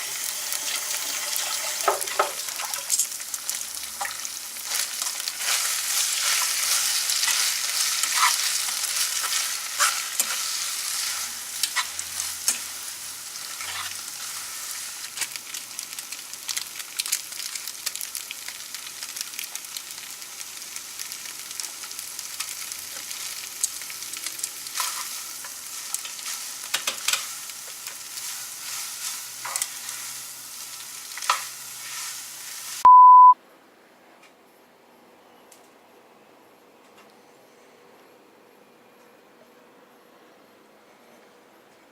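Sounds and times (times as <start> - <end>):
food sizzling in a pan: 0.0 - 32.9
utensil scraping a pan: 5.4 - 12.7
short beep: 32.8 - 33.4.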